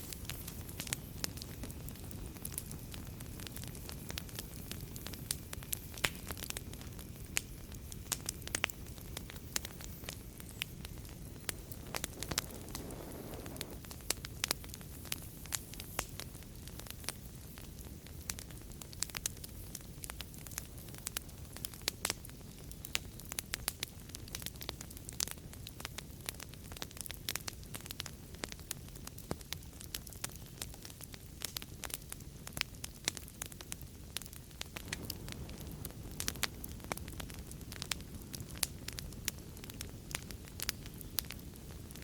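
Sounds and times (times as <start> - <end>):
wood fire crackling: 0.0 - 42.0.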